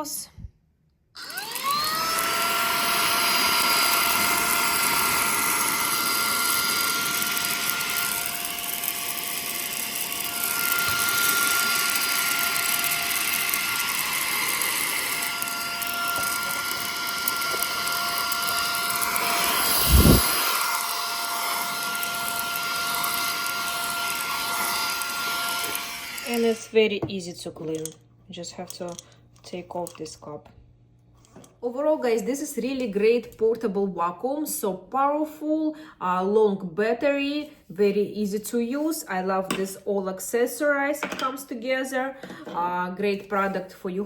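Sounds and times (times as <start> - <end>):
handheld vacuum cleaner running: 1.2 - 26.8.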